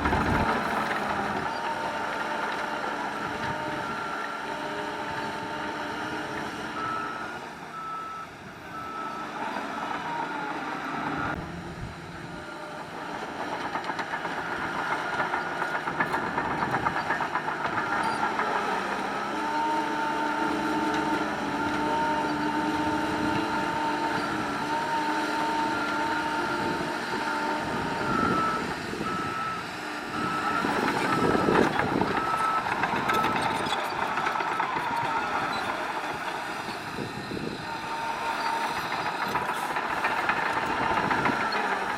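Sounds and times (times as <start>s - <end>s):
diesel engines running: 0.0s - 41.9s
reversing alarm beeping: 26.6s - 36.4s.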